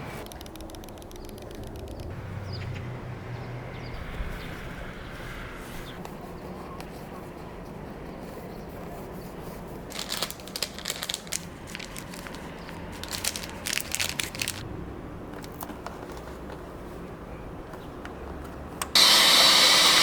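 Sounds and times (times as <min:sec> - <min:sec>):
crinkling handling noise: 0:06.0 - 0:19.0.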